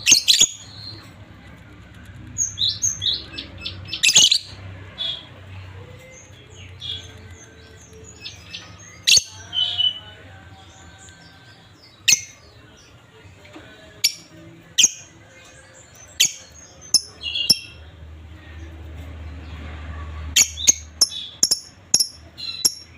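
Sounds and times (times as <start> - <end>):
lovebirds giving shrill calls: 0.0 - 1.0, 2.4 - 5.3, 16.2 - 17.8, 20.4 - 22.9.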